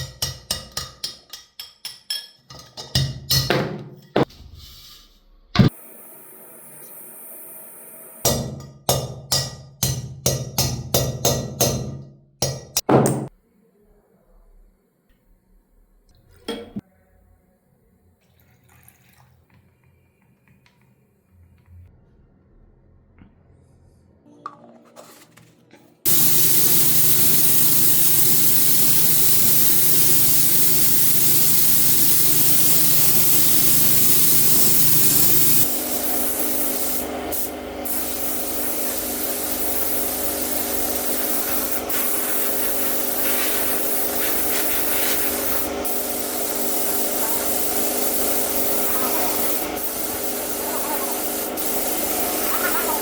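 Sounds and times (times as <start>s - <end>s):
workshop tool hissing: 26.1s - 53.0s.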